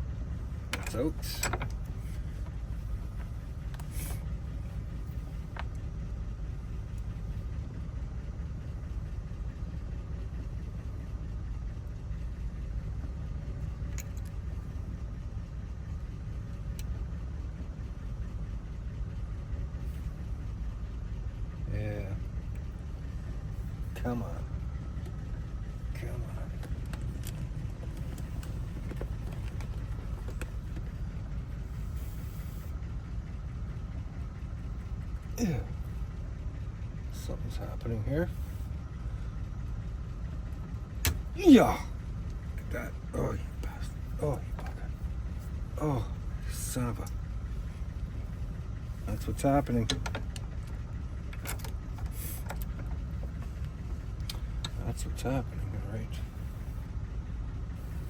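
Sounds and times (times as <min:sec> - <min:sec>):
steady low rumble: 0:00.0 - 0:58.0.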